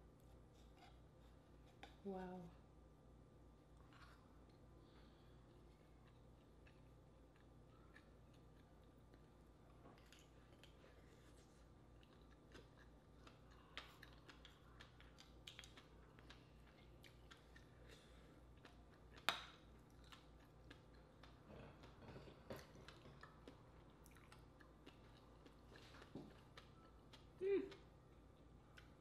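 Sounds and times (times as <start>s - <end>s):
person chewing with wet mouth clicks: 5.5s - 9.4s, 11.6s - 29.0s.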